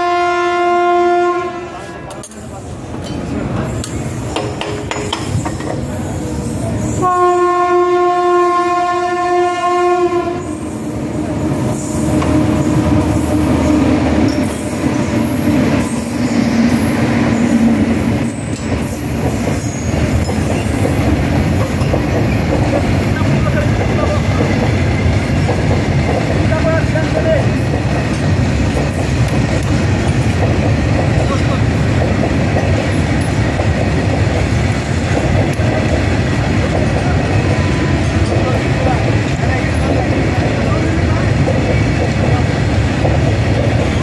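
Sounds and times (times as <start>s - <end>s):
locomotive horn blast: 0.0s - 1.8s, 7.0s - 10.6s
train wheels rumbling and clattering: 1.8s - 44.0s.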